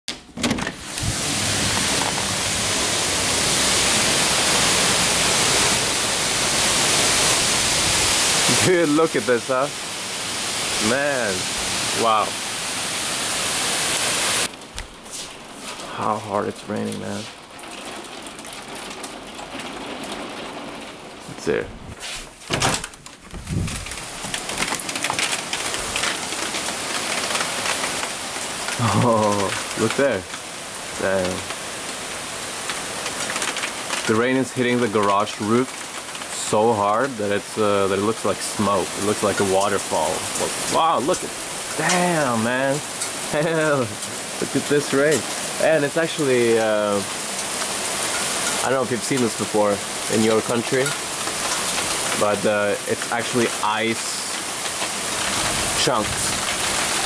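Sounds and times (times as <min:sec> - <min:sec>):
heavy rain pouring: 0:00.6 - 0:57.0
clatter of knocks: 0:22.5 - 0:26.2.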